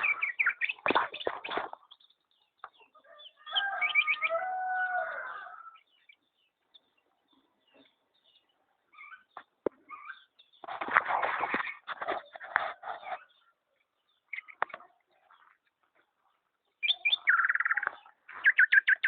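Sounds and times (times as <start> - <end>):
faint bird chirps: 0.0 - 15.6, 16.8 - 19.0
rooster crowing: 3.1 - 5.8.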